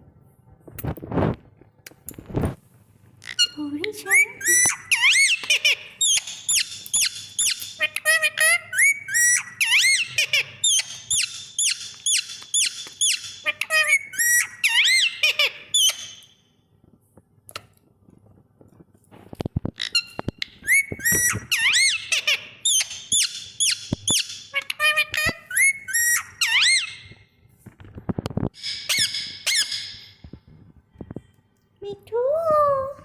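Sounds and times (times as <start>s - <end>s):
parrot shrill squeaky calls: 3.2s - 16.4s, 19.8s - 27.2s, 28.6s - 30.2s.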